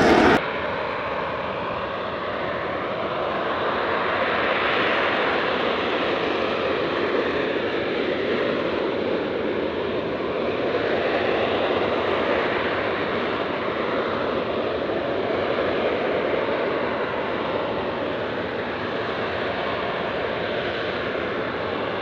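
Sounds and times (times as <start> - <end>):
aircraft engine noise: 0.0 - 0.4.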